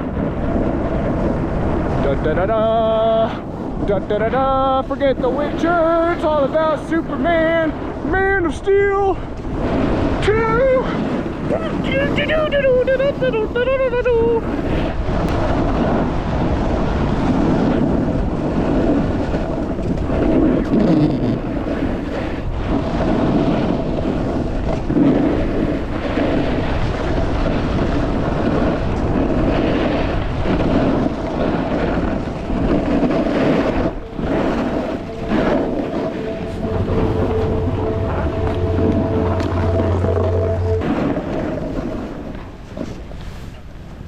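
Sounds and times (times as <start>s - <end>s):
wind rushing over microphone: 0.0s - 44.0s
snowboard carving over snow: 14.4s - 36.1s.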